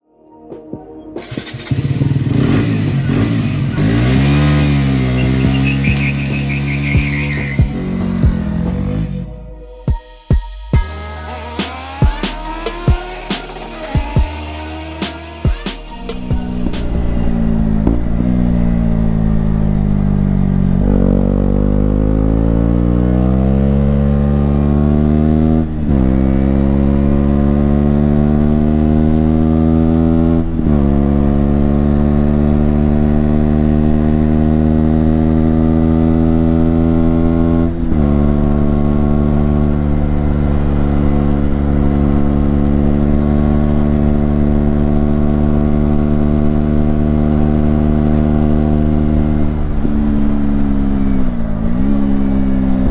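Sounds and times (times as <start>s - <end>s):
motorcycle engine revving through gears: 1.2s - 9.4s, 10.8s - 52.9s.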